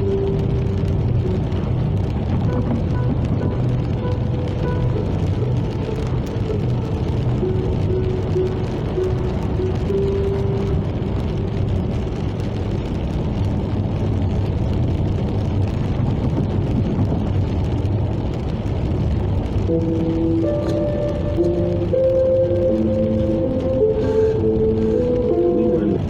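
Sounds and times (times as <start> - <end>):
music: 0.0 - 12.4, 19.6 - 26.0
car driving on road: 0.0 - 26.0.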